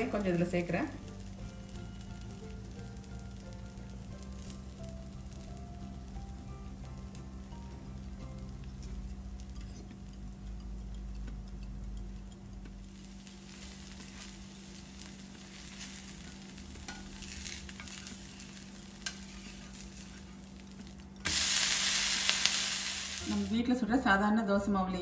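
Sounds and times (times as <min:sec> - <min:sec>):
batter sizzling on a pan: 0:00.0 - 0:23.8
loud sizzle on a hot pan: 0:00.0 - 0:24.4
steel spatula scraping a pan: 0:08.8 - 0:10.2, 0:15.4 - 0:23.2.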